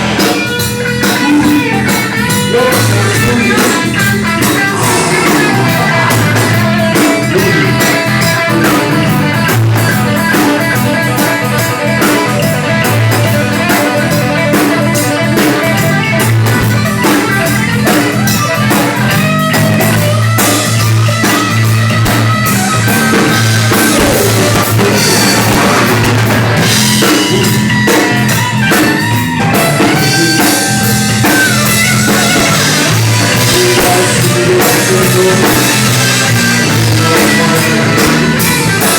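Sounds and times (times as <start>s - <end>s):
rock band instrumental: 0.0s - 38.9s
strong bass line: 0.0s - 38.9s.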